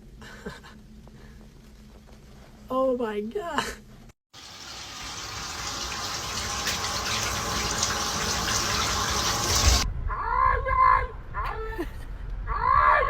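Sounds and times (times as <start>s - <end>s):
running water rushing: 4.4s - 9.8s.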